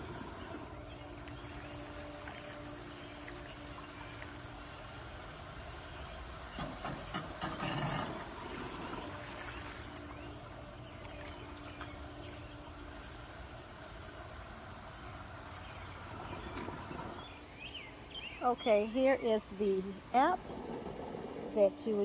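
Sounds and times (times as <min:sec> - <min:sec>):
water splashing: 0:00.0 - 0:17.5
pool water trickling and sloshing: 0:00.0 - 0:22.0
steady low hum: 0:00.0 - 0:22.0.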